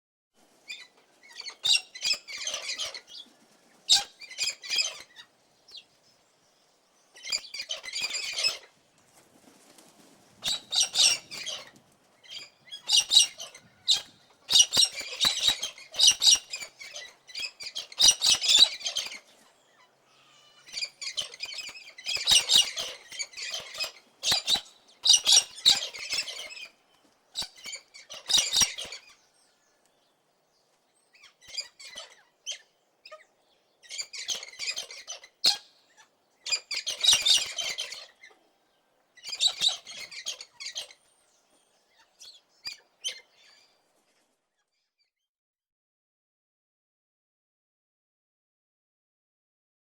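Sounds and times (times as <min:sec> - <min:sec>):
cockatoo squawking: 0:10.4 - 0:11.7, 0:12.3 - 0:19.2, 0:20.1 - 0:26.7.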